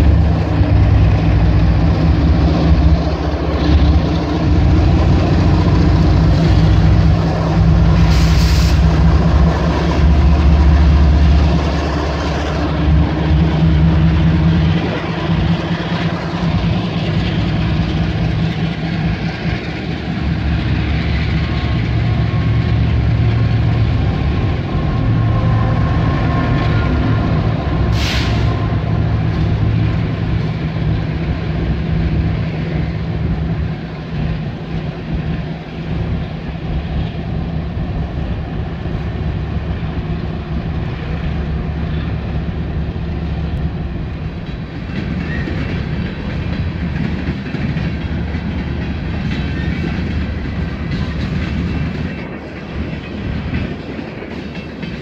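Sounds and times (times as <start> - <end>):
train wheels rumbling on rail: 0.0 - 55.0
short sharp hiss: 8.0 - 8.8.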